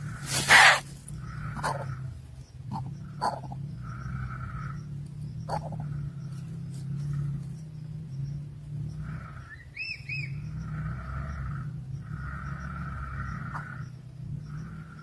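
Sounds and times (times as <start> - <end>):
nestlings rasping begging calls: 0.0 - 6.4.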